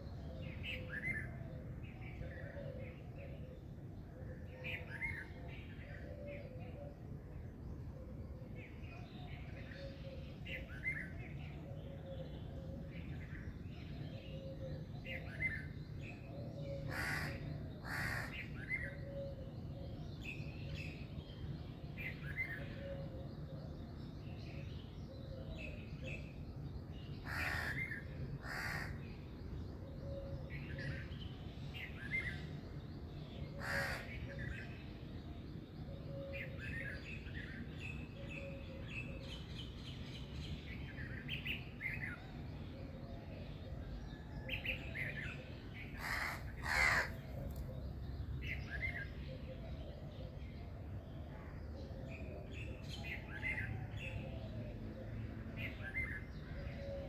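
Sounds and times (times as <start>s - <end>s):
harsh bird calls: 33.5s - 34.3s, 45.9s - 47.8s
birds chirping: 44.9s - 49.2s.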